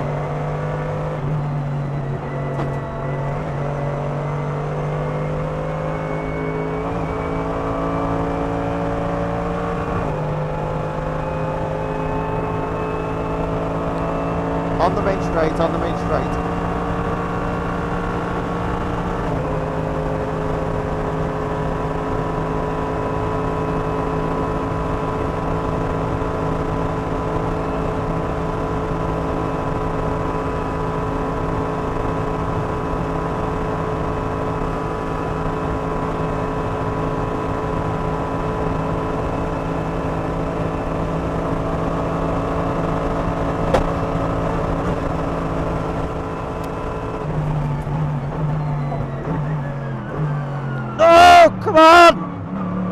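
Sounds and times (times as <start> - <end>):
race car engine at full throttle: 0.0 - 52.9.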